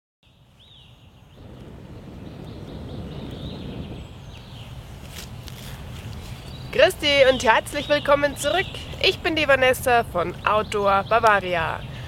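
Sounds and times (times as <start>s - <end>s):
bird chirps: 0.3s - 4.8s
low rumble: 1.3s - 4.7s.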